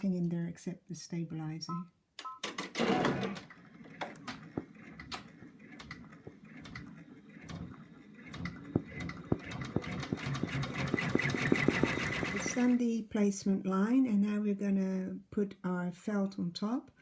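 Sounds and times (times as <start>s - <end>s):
embroidery machine stitching: 2.6s - 12.8s.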